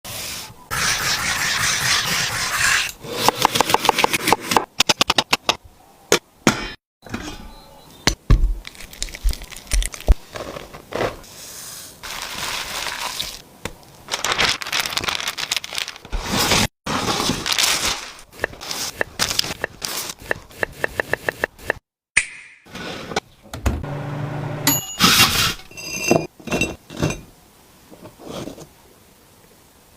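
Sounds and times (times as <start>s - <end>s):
knocks and scrapes: 10.0s - 11.3s, 25.0s - 27.3s, 27.9s - 28.7s.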